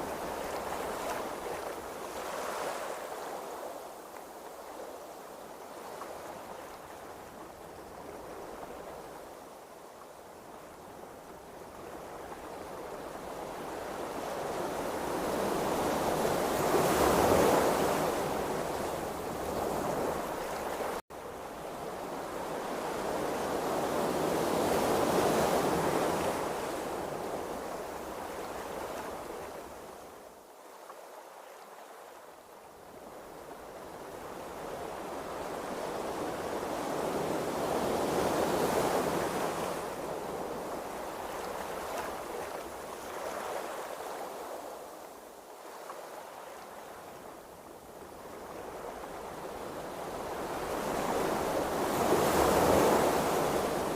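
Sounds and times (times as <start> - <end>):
ocean waves washing: 48.2 - 53.9.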